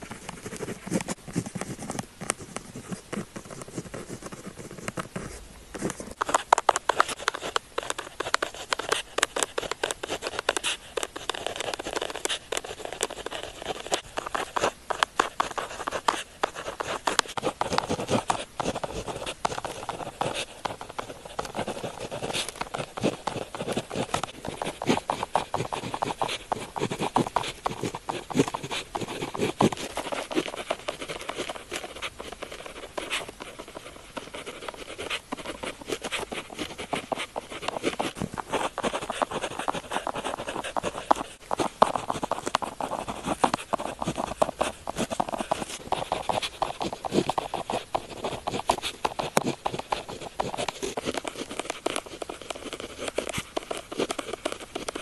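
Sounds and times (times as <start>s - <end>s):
pen scratching on paper: 0.0s - 55.0s.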